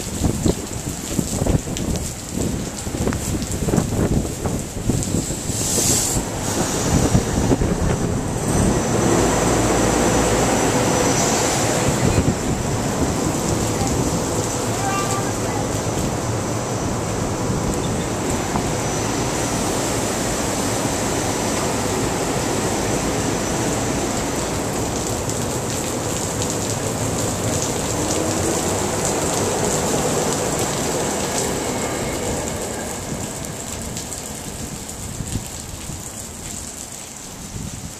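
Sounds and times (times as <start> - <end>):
heavy rain: 0.0 - 37.9
electric train passing: 5.2 - 35.1.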